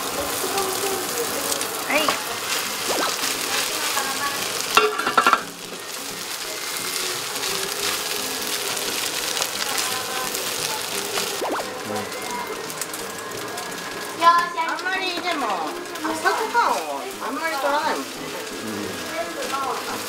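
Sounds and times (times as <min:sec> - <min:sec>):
egg and rice sizzling in a pan: 0:00.0 - 0:20.0
spatula scraping a pan: 0:02.0 - 0:11.3.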